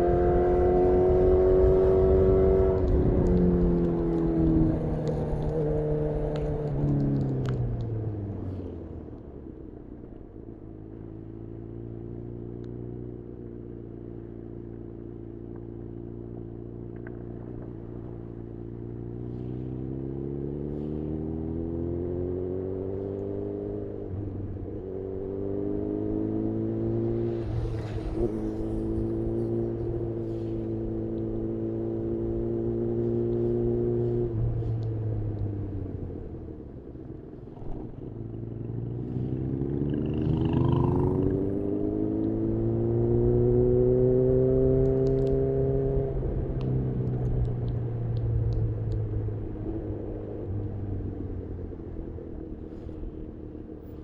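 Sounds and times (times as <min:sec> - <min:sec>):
motorcycle engine revving: 0:24.8 - 0:34.8, 0:37.1 - 0:46.5.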